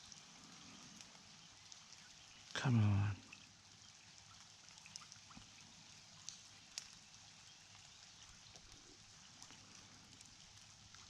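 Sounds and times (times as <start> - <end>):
light rain hissing: 0.0 - 11.0
soft raindrop taps: 0.0 - 11.0.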